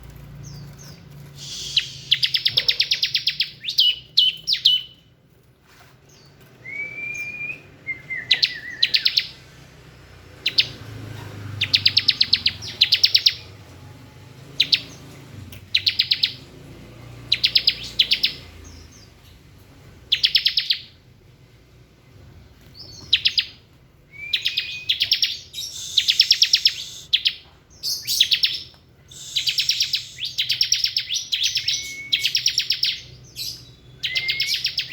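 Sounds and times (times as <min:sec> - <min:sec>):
bird rattling trills: 0:00.2 - 0:05.0, 0:24.6 - 0:27.1, 0:28.0 - 0:33.6
short whistled bird notes: 0:01.4 - 0:03.0, 0:24.2 - 0:27.3, 0:29.1 - 0:32.5, 0:34.1 - 0:34.9.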